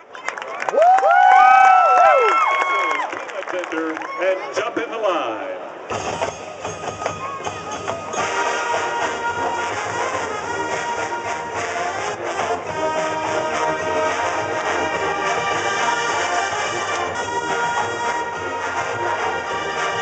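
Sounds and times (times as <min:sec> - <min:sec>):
brass playing: 0:05.9 - 0:20.0
marching percussion: 0:05.9 - 0:20.0.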